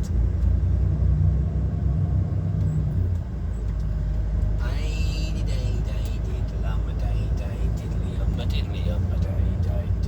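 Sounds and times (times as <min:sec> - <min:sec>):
lorry diesel engine drone: 0:00.0 - 0:10.0.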